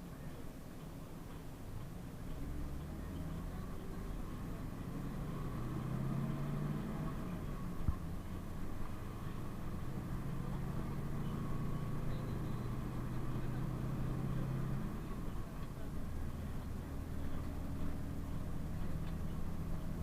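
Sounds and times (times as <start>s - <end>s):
bus engine humming: 0.0s - 20.0s.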